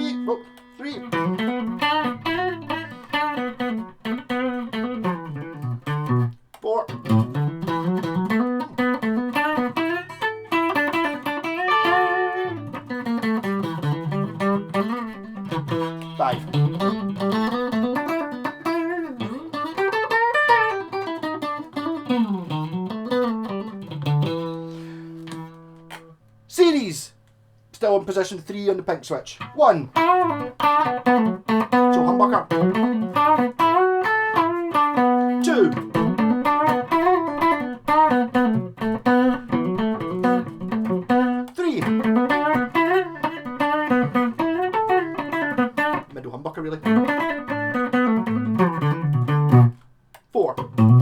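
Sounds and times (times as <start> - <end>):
person speaking a word: 0.0 - 1.2, 6.6 - 7.0, 16.1 - 16.5, 26.5 - 27.2, 27.8 - 30.0, 31.9 - 32.6, 35.3 - 35.9, 41.5 - 42.0, 46.0 - 46.9, 50.3 - 50.7
electric guitar sliding notes: 0.0 - 26.2, 29.4 - 49.8, 50.6 - 51.0.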